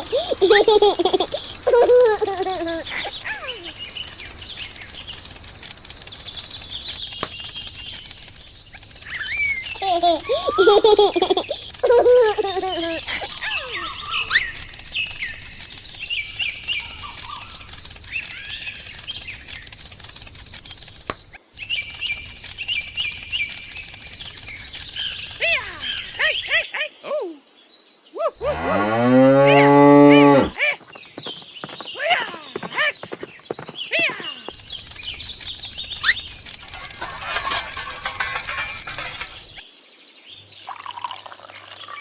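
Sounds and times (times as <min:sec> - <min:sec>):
cow mooing: 0:28.4 - 0:30.5.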